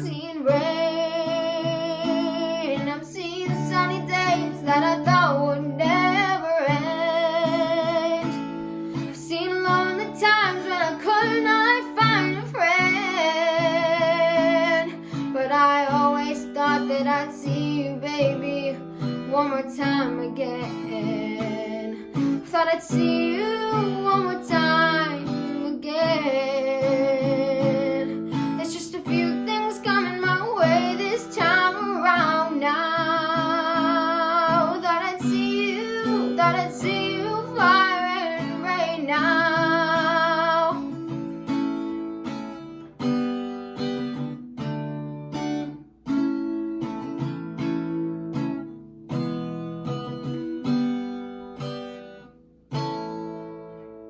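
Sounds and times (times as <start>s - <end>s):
person singing with vibrato: 0.0s - 41.0s
acoustic guitar: 0.0s - 54.0s.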